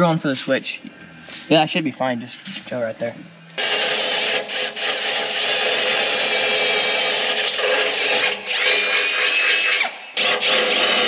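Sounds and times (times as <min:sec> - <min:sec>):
power drill boring: 0:03.6 - 0:11.0.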